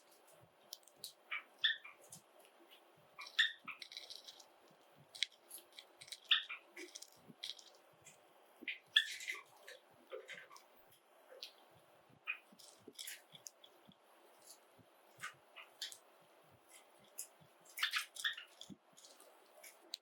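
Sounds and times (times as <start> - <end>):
sparrows chirping: 1.0 - 4.4, 5.4 - 7.6, 8.6 - 10.6, 17.1 - 19.1.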